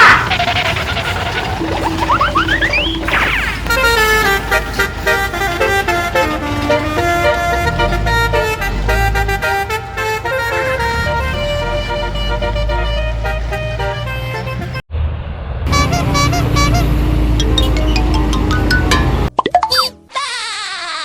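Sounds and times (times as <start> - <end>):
multi-trumpet bus horn tune: 1.4 - 14.8, 15.7 - 18.3.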